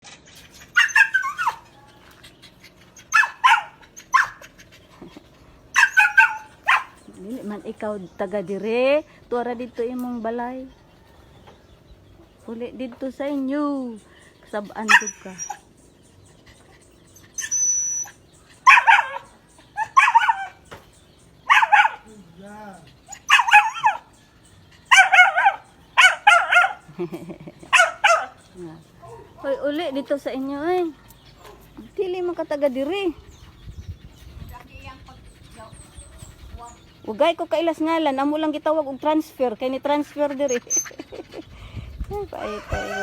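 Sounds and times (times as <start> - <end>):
dog barking: 3.2 - 4.4, 5.8 - 7.0, 18.7 - 20.6, 21.5 - 22.1, 23.3 - 24.1, 24.9 - 26.9, 27.7 - 28.4, 29.0 - 29.7.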